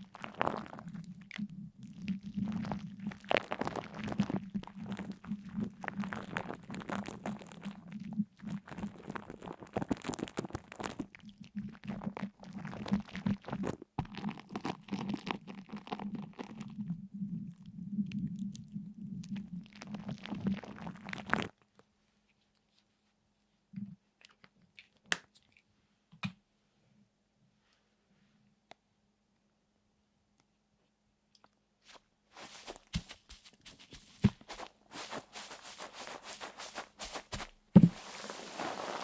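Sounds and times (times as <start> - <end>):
dense crackling and crunching: 0.0 - 17.7, 18.3 - 21.6, 31.9 - 39.0.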